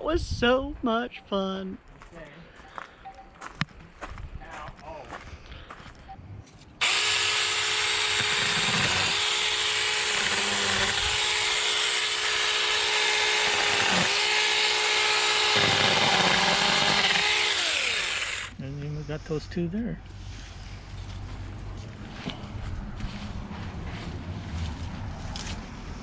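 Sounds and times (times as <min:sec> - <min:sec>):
chainsaw cutting wood: 0:06.8 - 0:18.6
electric chainsaw whining: 0:06.8 - 0:18.6.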